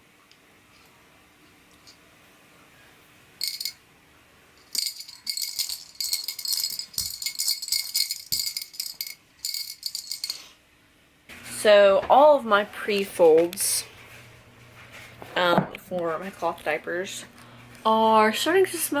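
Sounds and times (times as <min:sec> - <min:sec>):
small jingly rattle shaken: 0:03.4 - 0:03.8, 0:04.6 - 0:10.5.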